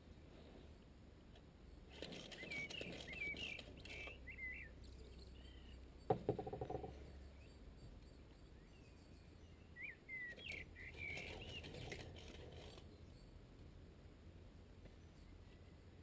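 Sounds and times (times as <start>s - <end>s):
birds chirping: 1.6s - 13.4s
metal rod knocking and rattling: 6.1s - 7.0s.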